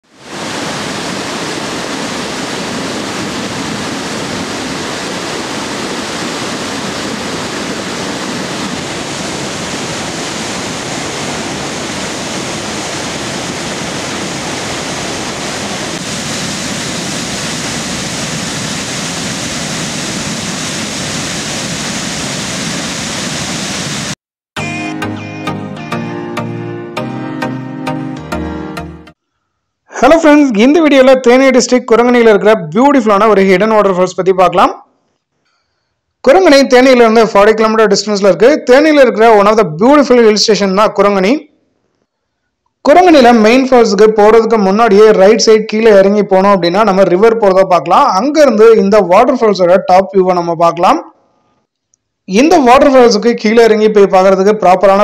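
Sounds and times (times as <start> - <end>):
waterfall rushing: 0.1 - 24.2.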